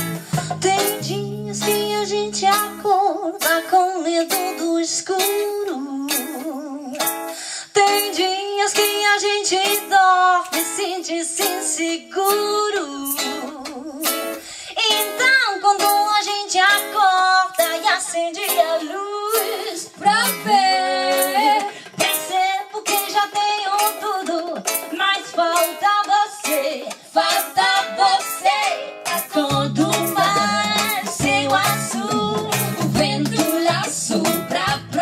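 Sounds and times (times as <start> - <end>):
hand drums beat: 0.0 - 3.6, 26.4 - 35.0
bass: 0.0 - 7.3, 9.7 - 25.9, 26.5 - 35.0
charango melody: 0.0 - 35.0
guitar: 0.0 - 35.0.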